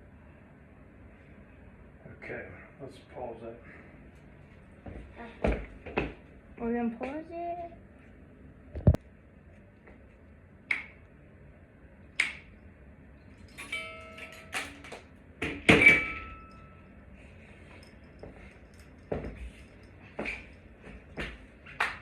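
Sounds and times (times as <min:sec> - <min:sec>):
knock with metallic ring: 0:15.5 - 0:16.7.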